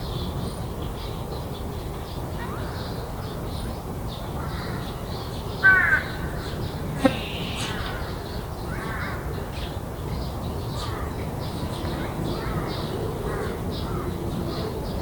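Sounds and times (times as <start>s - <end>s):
crow cawing: 5.6s - 6.2s.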